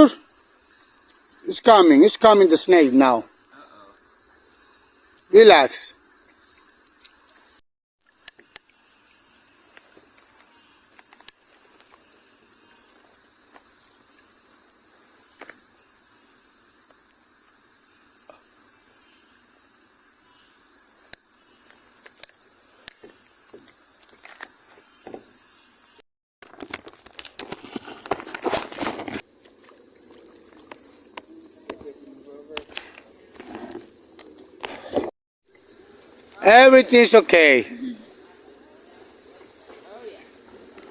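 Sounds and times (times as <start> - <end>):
night insects chorus: 0.0 - 40.9.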